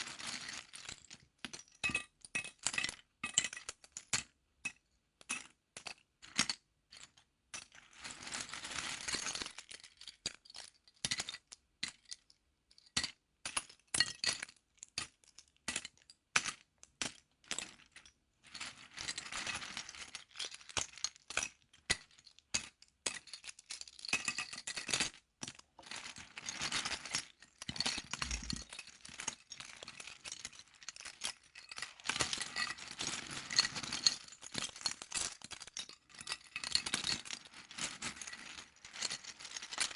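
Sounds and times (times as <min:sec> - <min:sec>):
plastic toy bricks clicking and rattling: 0:20.5 - 0:39.9.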